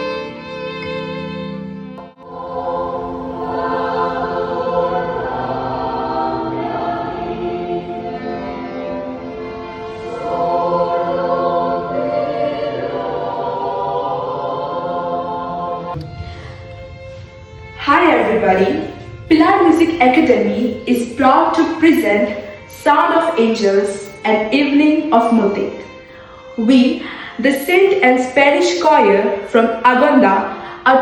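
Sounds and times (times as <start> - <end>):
choir singing in harmony: 2.0 - 24.8.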